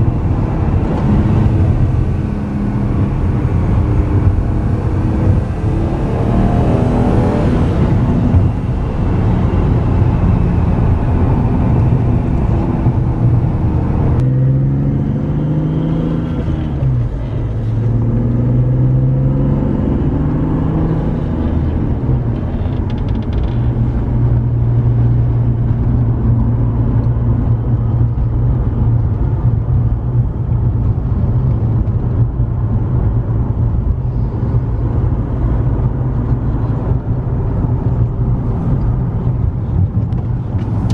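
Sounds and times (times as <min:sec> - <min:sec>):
road and wind hiss: 0:00.0 - 0:14.4
car engine accelerating: 0:00.0 - 0:40.9.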